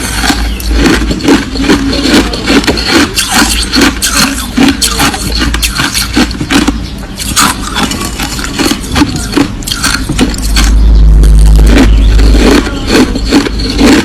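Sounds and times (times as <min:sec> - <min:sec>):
crushed ice crunching: 0:00.0 - 0:05.4, 0:11.4 - 0:14.0
loud low rumble: 0:00.0 - 0:14.0.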